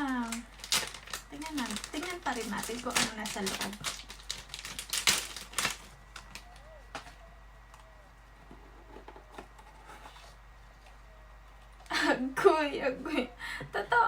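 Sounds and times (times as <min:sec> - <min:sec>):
wrapping rustling: 0:00.0 - 0:07.2.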